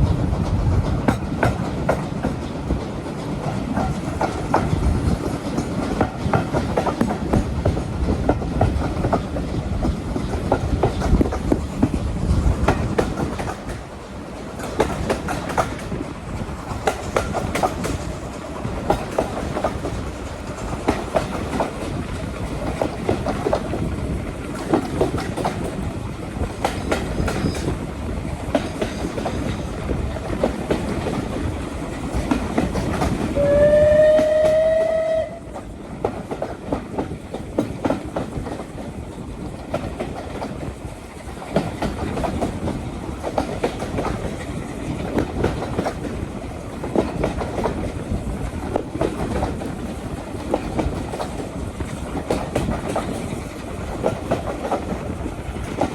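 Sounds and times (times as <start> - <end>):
train rumbling: 0.0 - 55.9
wheels clicking over rail joints: 0.0 - 55.9
train horn blast: 33.4 - 35.6.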